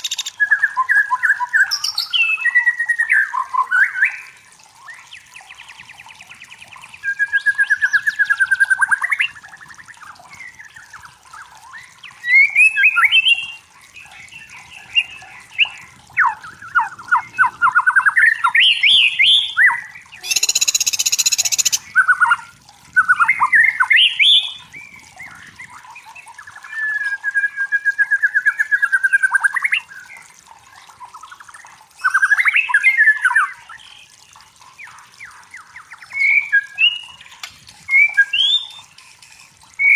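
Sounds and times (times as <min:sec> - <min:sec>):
bird singing: 0:00.0 - 0:04.3, 0:09.9 - 0:22.4, 0:23.0 - 0:30.2.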